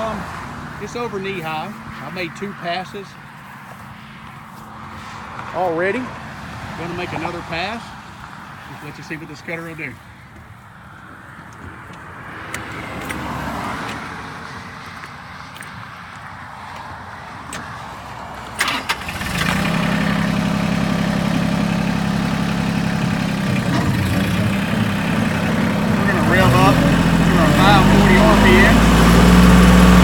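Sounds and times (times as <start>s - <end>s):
rotary cutter cutting grass: 18.6s - 30.0s
tractor engine droning: 18.6s - 30.0s.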